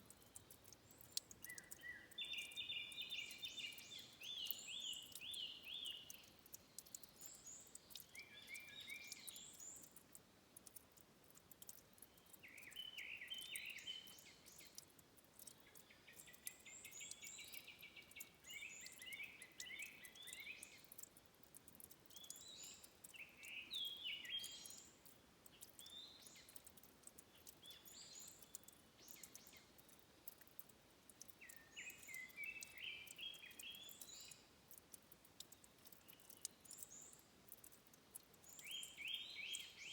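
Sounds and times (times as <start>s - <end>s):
faint small clicks: 0.0s - 39.9s
songbirds chirping: 0.0s - 39.9s.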